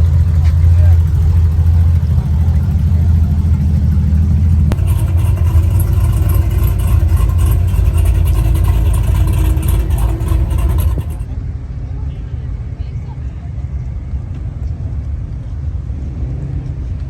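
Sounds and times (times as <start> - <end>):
car engine drone: 0.0 - 12.7
road noise: 0.0 - 17.0.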